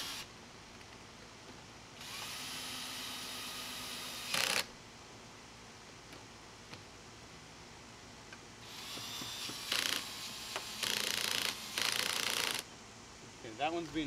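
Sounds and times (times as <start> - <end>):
cordless drill driving screw: 2.0 - 4.7, 8.6 - 12.6.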